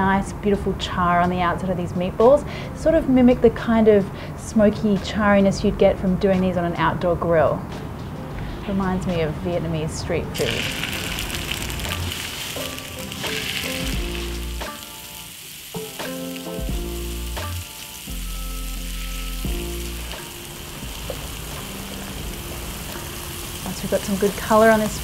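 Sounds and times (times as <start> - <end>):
meatballs sizzling in oil: 10.4 - 25.0.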